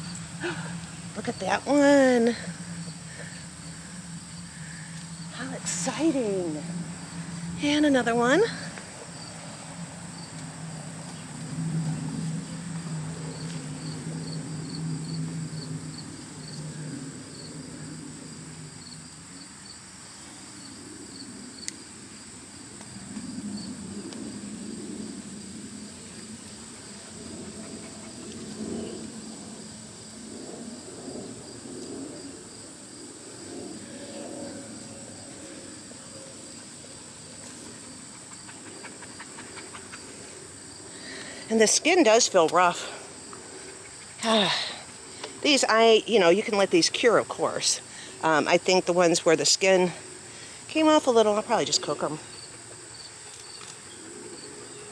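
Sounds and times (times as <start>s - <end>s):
low droning hum: 0.0s - 19.2s
crickets chirping: 0.0s - 54.9s
high insect trill: 0.0s - 54.9s.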